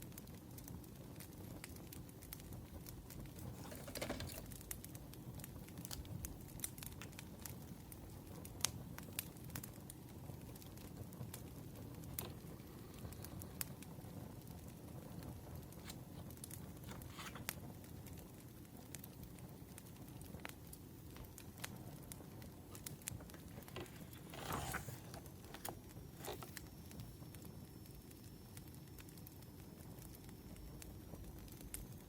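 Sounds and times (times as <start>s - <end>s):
wood fire crackling and popping: 0.0s - 32.0s
soft rustle: 22.7s - 27.1s.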